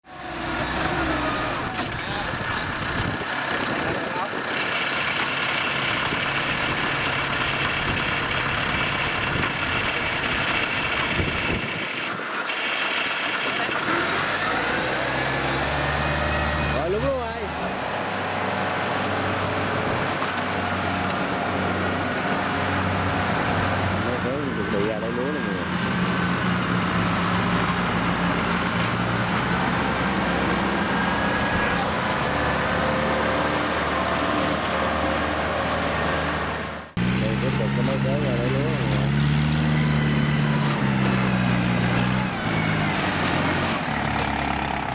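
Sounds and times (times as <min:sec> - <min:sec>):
farm machine engine running: 0:00.1 - 0:44.9.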